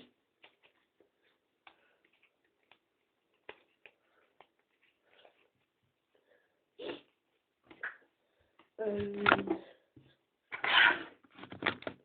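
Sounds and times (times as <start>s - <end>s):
faint clicks and taps: 0.3s - 5.7s.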